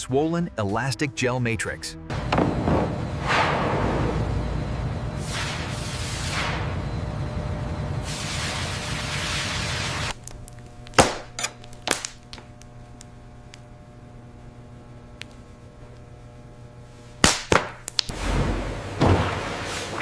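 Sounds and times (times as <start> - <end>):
machinery rushing noise: 2.1 - 10.1
low machinery hum: 2.1 - 20.0
sharp bangs: 11.0 - 12.2.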